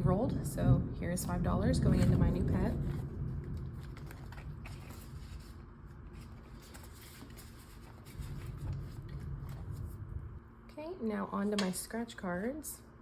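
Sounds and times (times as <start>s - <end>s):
paper cash rustling: 1.9s - 9.9s.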